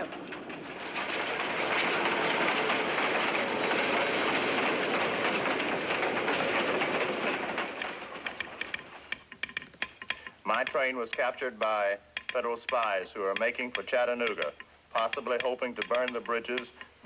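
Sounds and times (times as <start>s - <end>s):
train clattering on rails: 0.0s - 17.0s
telegraph sounder clicking: 8.2s - 17.0s.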